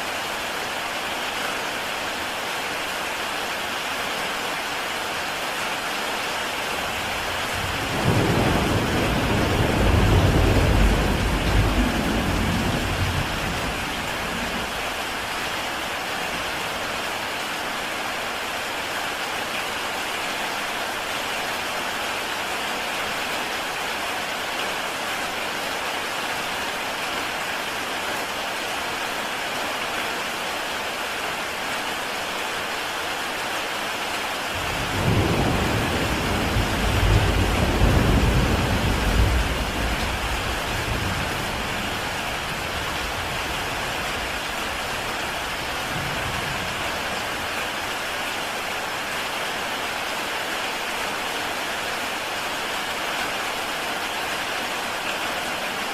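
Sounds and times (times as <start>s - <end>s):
heavy rain on tile roof: 0.0s - 55.9s
thunder rumbling: 7.0s - 15.0s, 34.6s - 47.2s.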